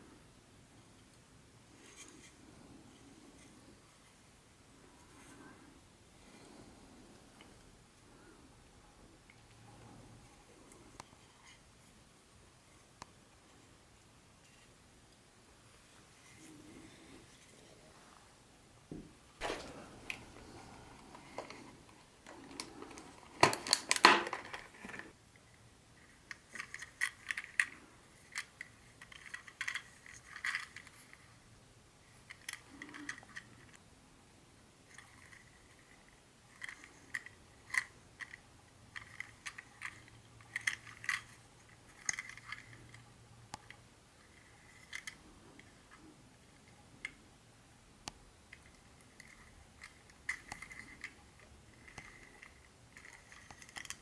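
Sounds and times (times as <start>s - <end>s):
parts rattling: 19.4s - 25.1s
small hard parts clicking: 48.5s - 54.0s.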